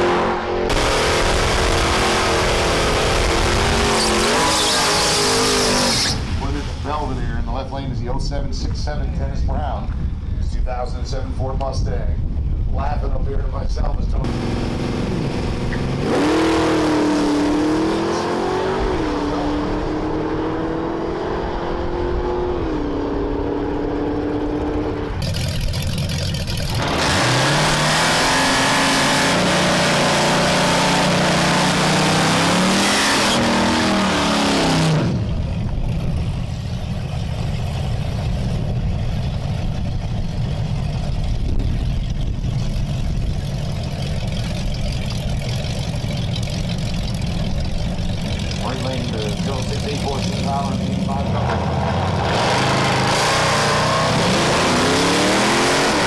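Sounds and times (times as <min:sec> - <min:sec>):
car engine revving loudly: 0:00.0 - 0:06.8, 0:14.2 - 0:25.3, 0:26.7 - 0:35.4, 0:48.1 - 0:56.0
car engine shifting gears: 0:14.2 - 0:56.0
car engine idling: 0:23.7 - 0:27.3, 0:35.2 - 0:53.1.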